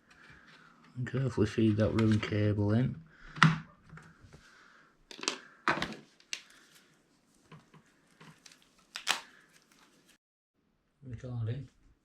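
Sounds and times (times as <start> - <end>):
plastic parts clicking: 5.1 - 6.5.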